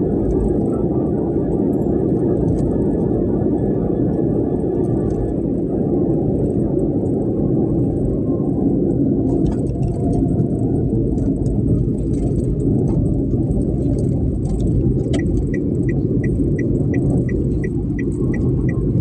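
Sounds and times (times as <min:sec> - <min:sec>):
strong wind: 0:00.0 - 0:19.0.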